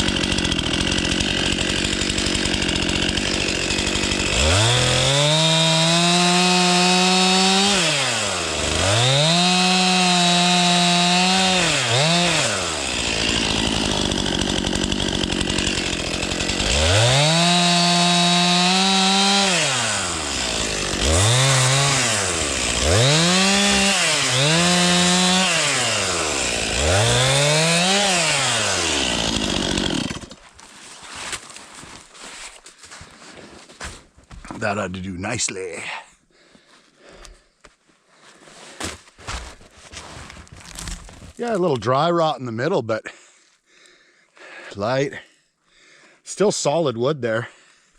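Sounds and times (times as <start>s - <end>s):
chainsaw cutting wood: 0.0s - 32.2s, 38.8s - 41.6s.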